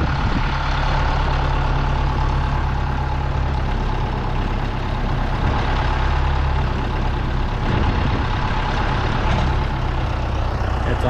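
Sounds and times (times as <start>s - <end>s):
farm vehicle engine rumbling: 0.0s - 11.0s.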